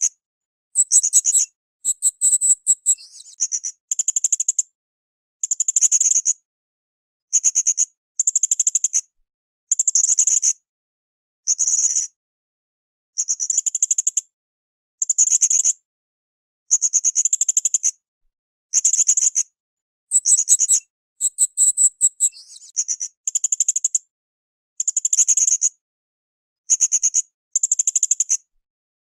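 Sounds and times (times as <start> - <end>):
parrot shrill trilled chirps: 20.1 - 22.4.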